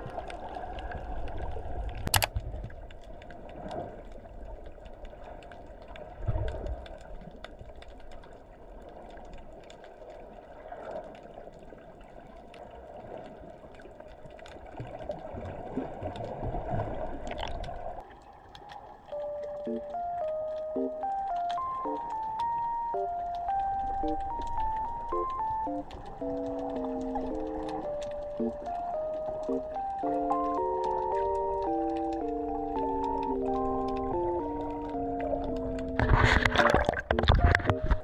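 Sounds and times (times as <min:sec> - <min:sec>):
water gurgling and sloshing: 0:00.0 - 0:38.0
small clicks: 0:01.9 - 0:09.9.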